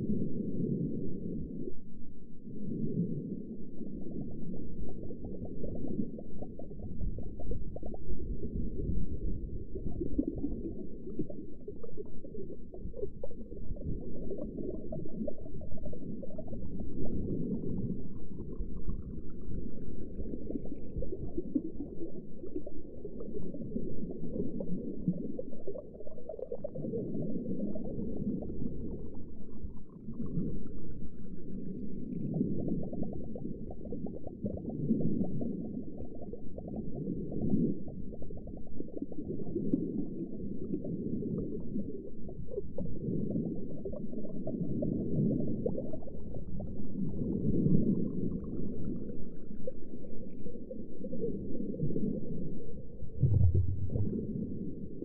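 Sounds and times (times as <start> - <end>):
underwater bubbling rumble: 0.0 - 55.0
faint rising whine: 53.0 - 55.0.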